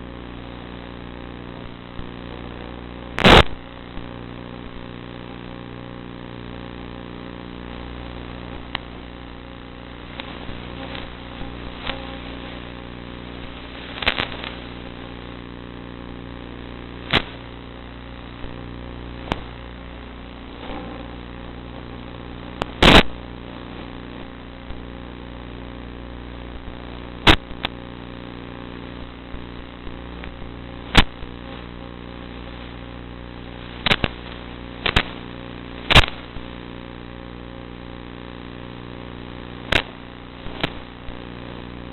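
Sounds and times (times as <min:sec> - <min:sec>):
sharp cracks or knocks: 0:03.2 - 0:03.6, 0:17.1 - 0:17.4, 0:35.9 - 0:36.3, 0:39.7 - 0:39.9.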